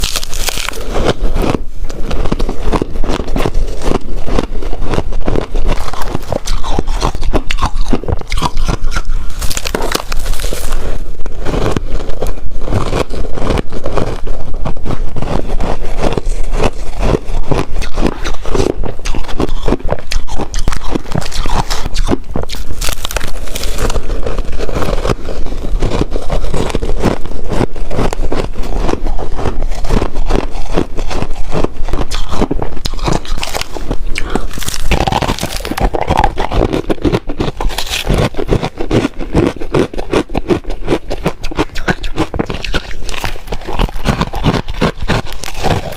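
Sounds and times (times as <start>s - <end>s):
ice being chewed: 0.0s - 45.9s.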